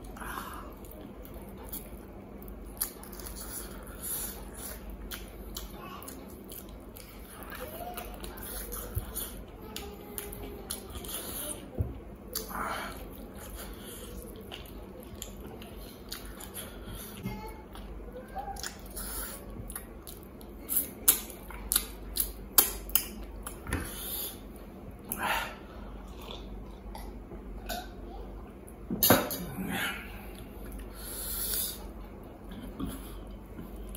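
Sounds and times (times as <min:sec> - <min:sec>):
person chewing with mouth smacks: 0:00.1 - 0:11.7, 0:12.3 - 0:25.2, 0:25.9 - 0:27.8.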